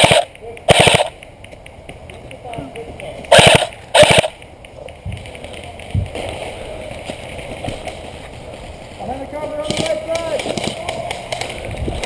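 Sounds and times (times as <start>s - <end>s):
airsoft gun automatic fire: 0.0s - 1.2s, 3.3s - 4.4s.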